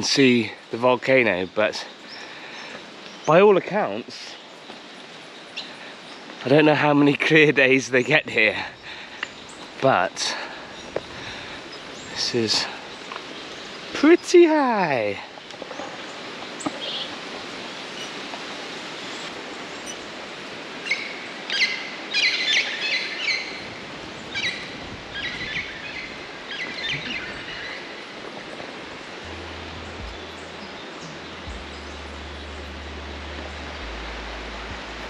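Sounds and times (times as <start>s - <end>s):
birds calling rapidly: 0.0s - 35.0s
forest background hiss: 0.0s - 35.0s
faint low rumble: 26.8s - 35.0s.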